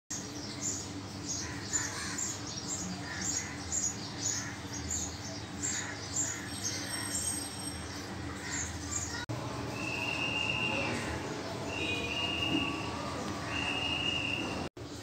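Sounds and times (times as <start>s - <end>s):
birds chirping: 0.1s - 15.0s.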